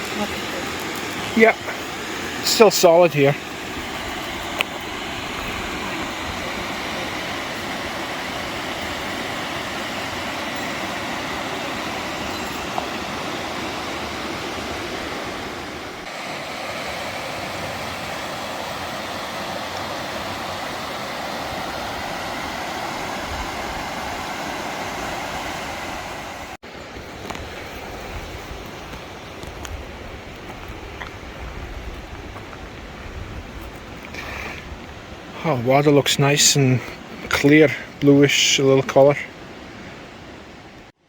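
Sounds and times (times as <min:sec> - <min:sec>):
river water rushing: 0:00.0 - 0:31.4.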